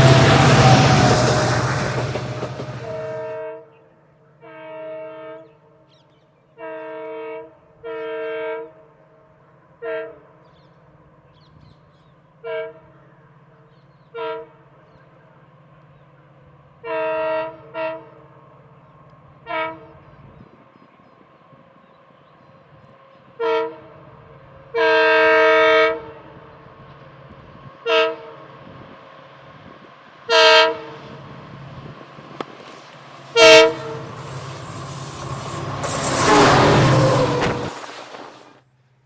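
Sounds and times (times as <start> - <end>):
locomotive horn blasts: 0.0 - 3.4, 30.3 - 38.4
train rumble: 0.0 - 3.4, 28.5 - 38.5.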